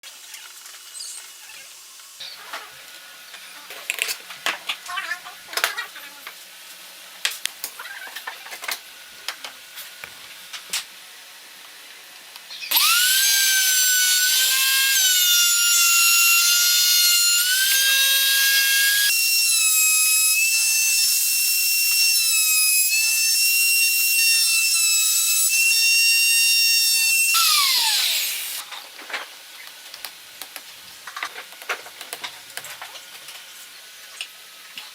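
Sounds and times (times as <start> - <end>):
wood router whining: 12.7 - 28.6.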